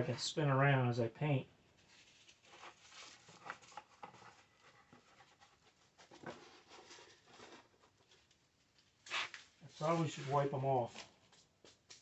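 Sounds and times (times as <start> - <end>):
faint small taps and rustles: 10.9 - 12.0.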